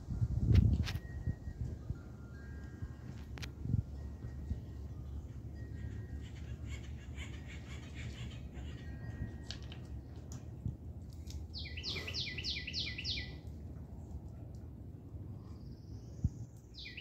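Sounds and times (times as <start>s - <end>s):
steady low rumble: 0.0s - 7.4s, 8.0s - 16.9s
songbird singing down-slurred notes: 11.5s - 13.5s, 15.3s - 17.0s.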